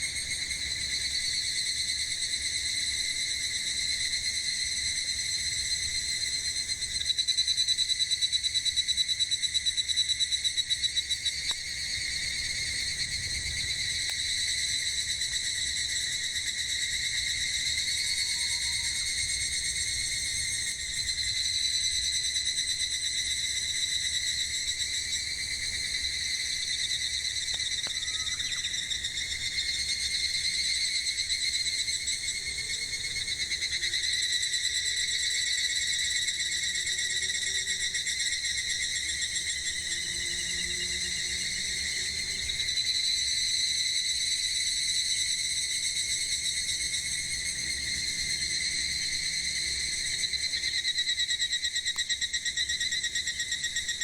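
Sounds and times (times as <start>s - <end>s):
cicadas droning: 0.0s - 54.0s.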